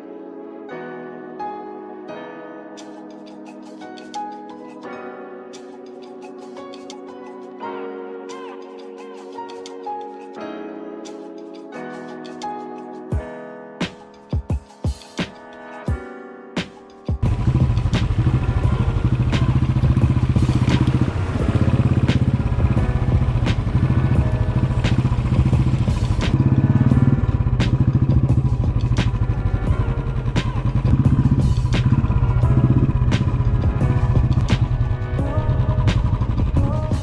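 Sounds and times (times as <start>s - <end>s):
motorcycle engine running: 17.2s - 37.0s.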